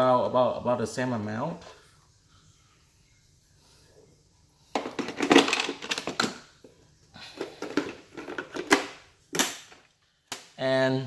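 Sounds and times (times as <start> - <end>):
hard plastic crackling and clattering: 4.7 - 10.6
sharp plastic clicks: 9.3 - 10.6.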